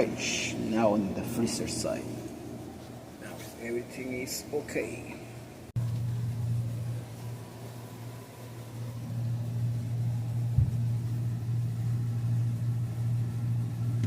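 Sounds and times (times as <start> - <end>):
refrigerator compressor humming: 0.0 - 14.0
brief thump: 10.5 - 10.8.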